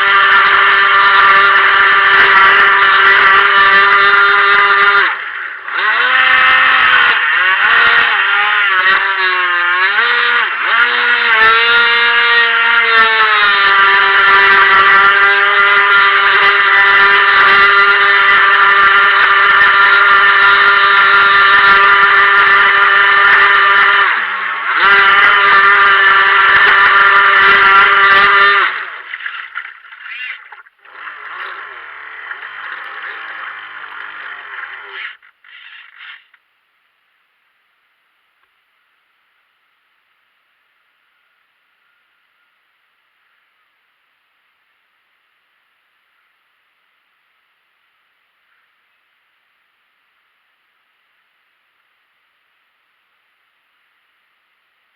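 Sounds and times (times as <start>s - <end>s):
electric motor whining: 0.0s - 36.4s.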